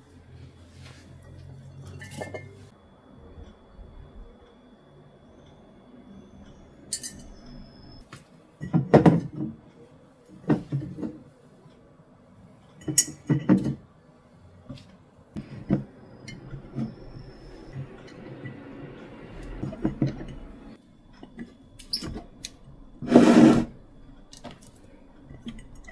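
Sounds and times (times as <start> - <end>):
glassware ringing clinks: 1.9 - 2.7, 7.0 - 7.4.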